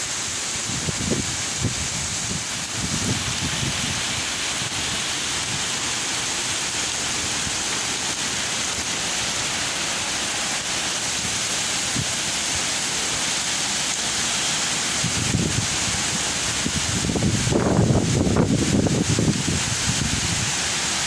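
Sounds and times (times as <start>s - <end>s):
heavy rain pouring: 0.0s - 21.0s
wind buffeting microphone: 0.5s - 5.8s, 15.0s - 20.6s.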